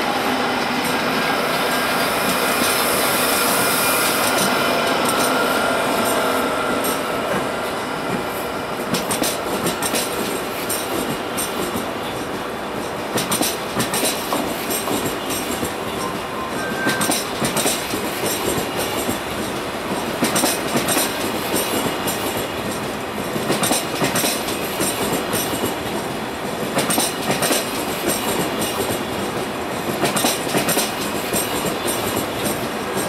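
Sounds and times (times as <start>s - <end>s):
train rushing rumble: 0.0s - 33.0s
wheels clacking over rail joints: 17.0s - 33.0s.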